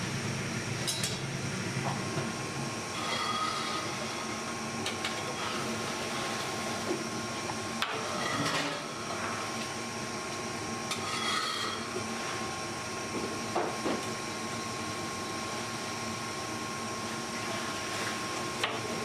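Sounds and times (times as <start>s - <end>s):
steady machine hum: 0.0s - 19.0s
rubbing and scraping dough: 10.9s - 11.9s.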